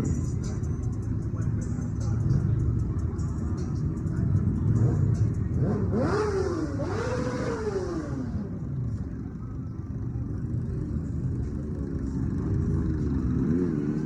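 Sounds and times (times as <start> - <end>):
motorcycle engine revving: 4.4 - 8.8, 11.4 - 14.0.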